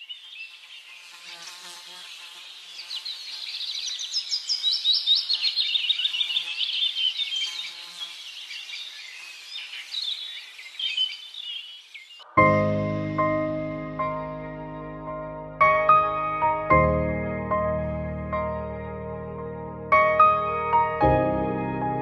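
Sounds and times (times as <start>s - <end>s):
birds chirping and trilling: 0.0s - 12.4s.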